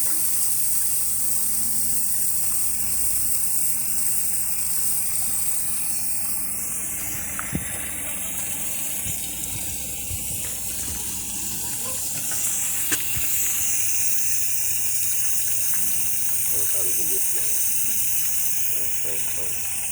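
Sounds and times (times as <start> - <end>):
water hissing from pipe: 0.0 - 19.9.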